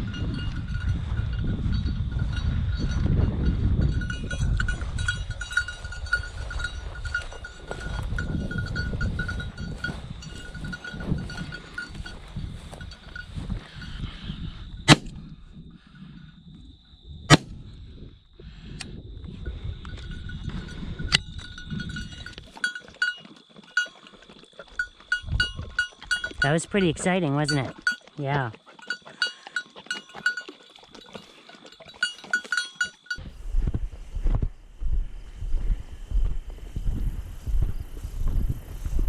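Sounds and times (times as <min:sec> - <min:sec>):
dog collar bell tinkling: 0:00.0 - 0:14.2, 0:19.5 - 0:33.3
wind rumble on microphone: 0:00.0 - 0:22.6, 0:24.8 - 0:27.9, 0:33.2 - 0:39.0
shotgun shots: 0:14.9 - 0:15.2, 0:17.3 - 0:17.5.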